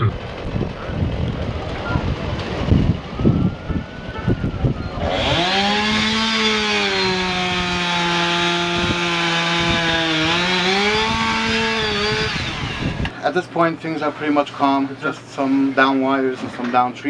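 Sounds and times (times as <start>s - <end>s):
chainsaw cutting wood: 5.0s - 13.1s.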